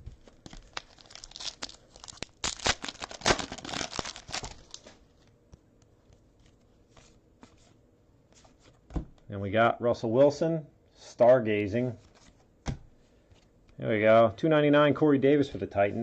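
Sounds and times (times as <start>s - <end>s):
foil wrapper tearing and crinkling: 0.2s - 5.0s.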